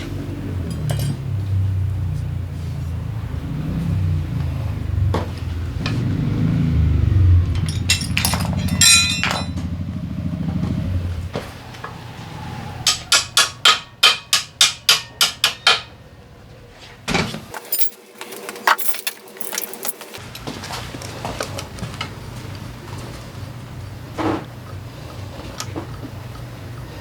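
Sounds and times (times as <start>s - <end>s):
sharp metal tapping: 7.5s - 9.7s, 12.9s - 15.9s.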